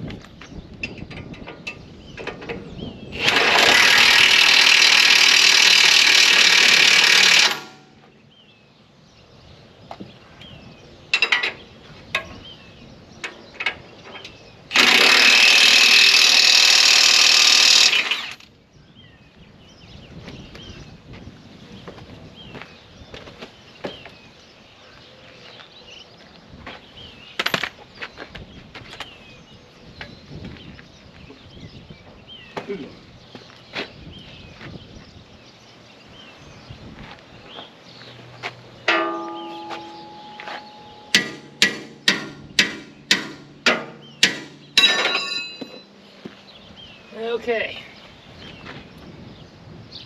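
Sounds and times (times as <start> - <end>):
loud metal rattling: 3.2 - 7.8, 14.7 - 18.4, 38.9 - 45.8
hammer striking metal: 38.9 - 45.9.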